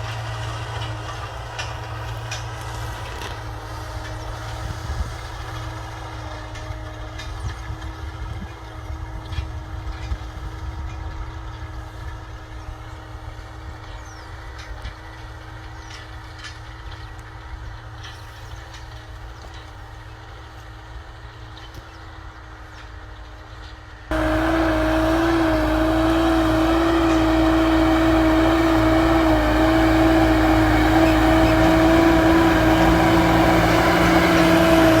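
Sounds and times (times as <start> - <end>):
tractor diesel engine running: 24.1 - 35.0.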